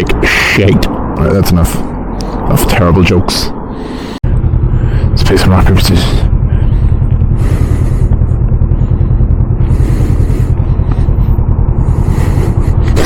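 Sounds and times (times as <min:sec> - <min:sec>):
motorcycle engine running: 0:04.2 - 0:13.0.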